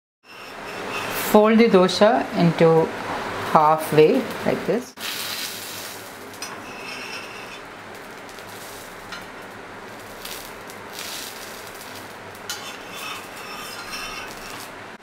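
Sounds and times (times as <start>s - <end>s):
steel spatula scraping: 0.2s - 1.4s, 5.0s - 7.7s, 9.9s - 14.8s
dosa sizzling on griddle: 0.3s - 1.4s, 5.0s - 15.0s.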